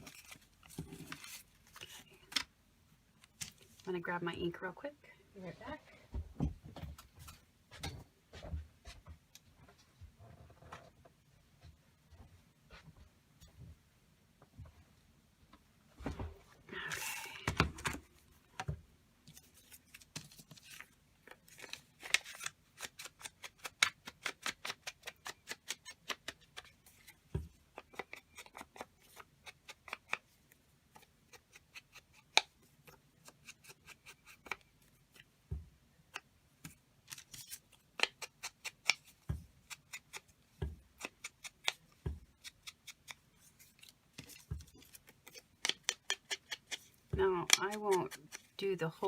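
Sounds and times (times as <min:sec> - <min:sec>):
scissors snipping paper: 0:21.3 - 0:27.1, 0:37.1 - 0:40.3, 0:41.0 - 0:48.6.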